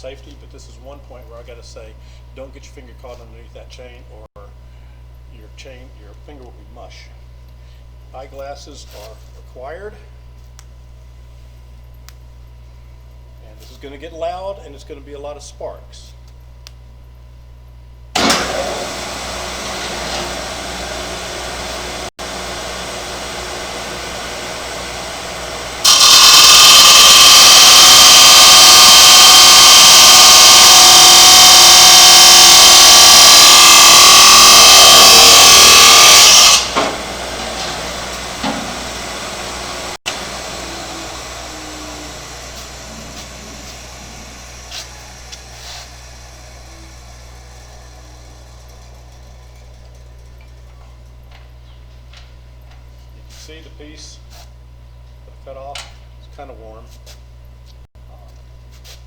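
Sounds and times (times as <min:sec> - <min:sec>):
cutoff saw motor spinning: 0:18.2 - 0:50.4
saw wheel grinding metal: 0:18.2 - 0:50.6.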